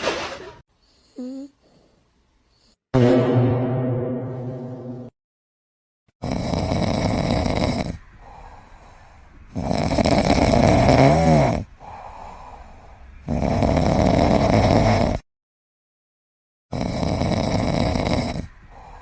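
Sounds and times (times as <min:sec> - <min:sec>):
quiet breathing: 0:00.7 - 0:02.8, 0:08.0 - 0:09.6, 0:11.6 - 0:13.2, 0:18.5 - 0:19.0
whistling snore: 0:00.9 - 0:01.8, 0:06.2 - 0:08.0, 0:09.5 - 0:11.6, 0:13.2 - 0:15.2, 0:16.7 - 0:19.0
loud rasping snoring: 0:06.2 - 0:08.0, 0:09.5 - 0:12.1, 0:13.2 - 0:15.2, 0:16.7 - 0:19.0.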